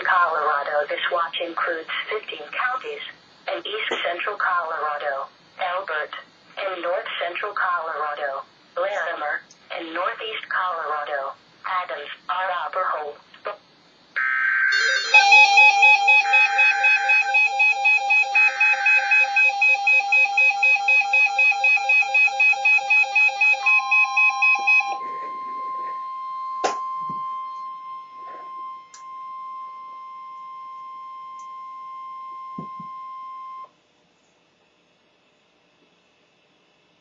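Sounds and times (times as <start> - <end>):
steady alarm tone: 14.2 - 33.7
rapid pulsing beep: 14.8 - 29.8.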